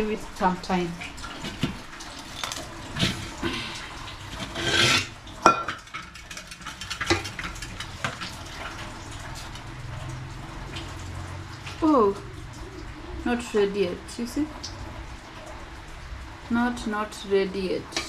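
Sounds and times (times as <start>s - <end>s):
metal pot and lid clinking: 4.4s - 7.5s.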